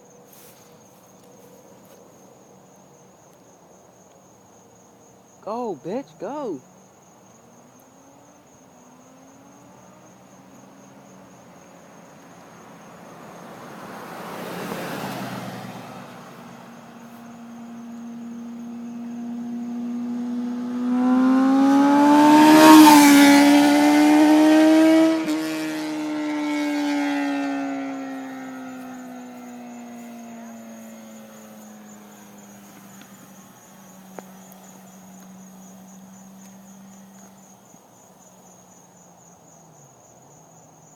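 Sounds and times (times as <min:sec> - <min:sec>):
motorcycle passing by: 0:08.0 - 0:37.7.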